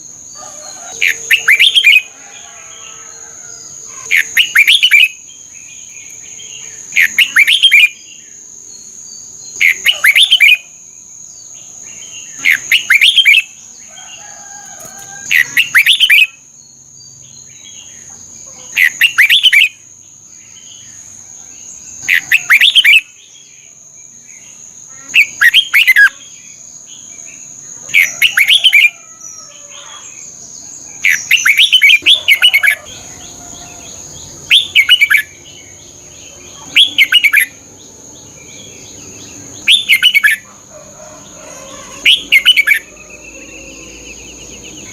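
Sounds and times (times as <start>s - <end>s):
bulbul singing warbled phrases: 0.0s - 2.2s, 3.8s - 8.3s, 8.9s - 10.7s, 15.2s - 16.4s, 17.1s - 19.8s, 22.0s - 23.2s, 29.6s - 40.6s, 41.7s - 44.9s.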